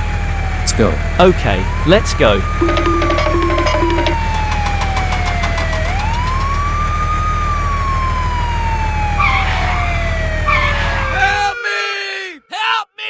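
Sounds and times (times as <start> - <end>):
emergency vehicle siren wailing: 0.0 - 12.4
steady low rumble: 2.4 - 8.3.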